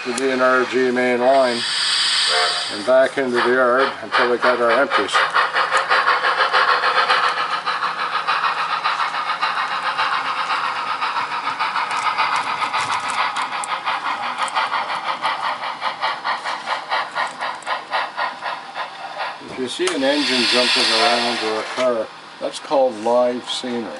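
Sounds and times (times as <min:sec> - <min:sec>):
model locomotive chuffing: 0:00.0 - 0:23.9.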